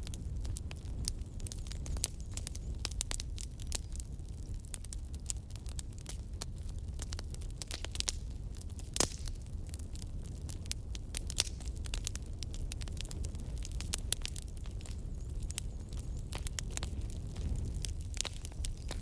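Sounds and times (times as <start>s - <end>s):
fire crackling and popping: 0.0s - 19.0s
fire low rumble: 0.0s - 19.0s.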